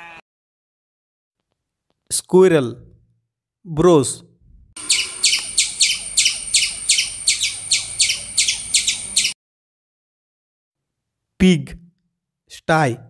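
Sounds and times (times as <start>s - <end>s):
squirrel chirping: 4.8s - 9.4s.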